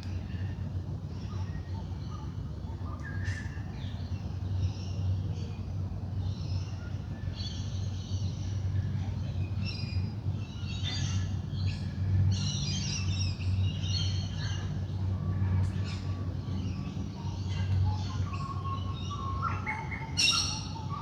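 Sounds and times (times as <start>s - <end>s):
birds chirping and trilling: 9.6s - 21.0s.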